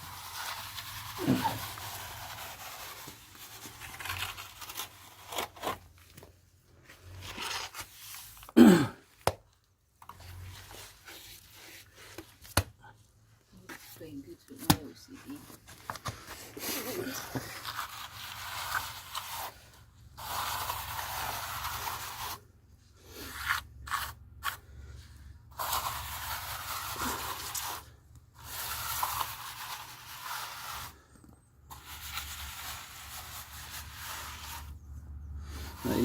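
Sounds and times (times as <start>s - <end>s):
hand tool scraping render on wall: 0.0s - 5.8s, 16.3s - 22.4s, 23.0s - 31.1s, 31.7s - 34.8s, 35.4s - 36.0s.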